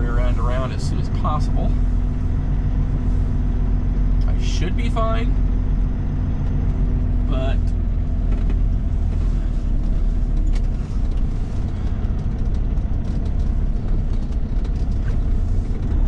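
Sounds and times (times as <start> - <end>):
truck diesel engine low rumble: 0.0 - 16.0
faint clicks and rattles: 7.6 - 16.0.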